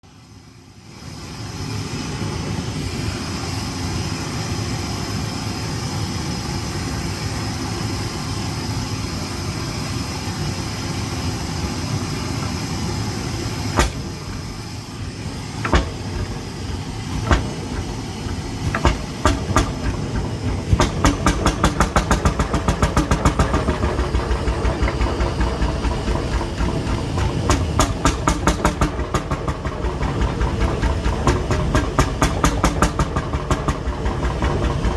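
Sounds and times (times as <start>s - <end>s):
steady hiss: 0.1s - 29.3s
hot-bulb engine knocking: 12.5s - 34.9s.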